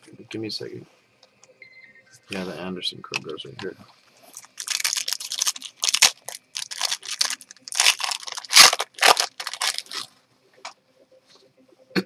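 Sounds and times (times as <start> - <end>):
card packaging crinkling: 4.3 - 10.1.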